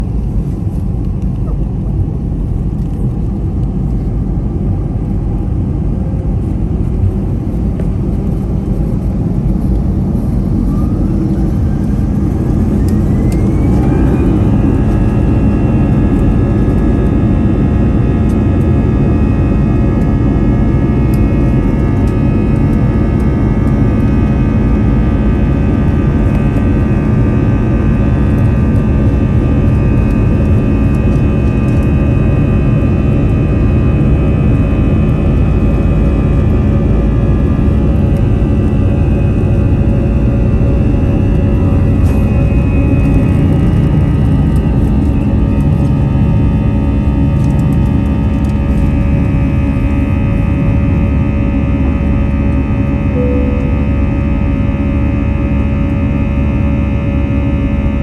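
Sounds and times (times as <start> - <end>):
jet engines spooling up: 6.4 - 32.5, 33.2 - 56.2.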